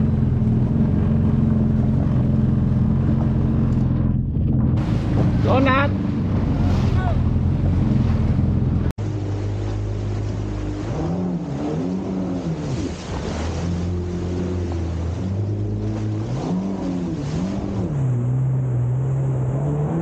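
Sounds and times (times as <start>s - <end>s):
jet ski engine: 0.0s - 20.0s
wind: 0.0s - 20.0s.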